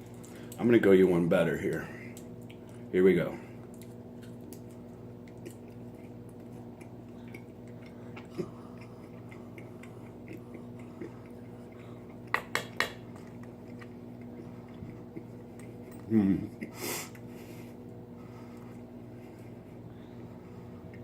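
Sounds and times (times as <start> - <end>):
person chewing: 3.6 - 19.8.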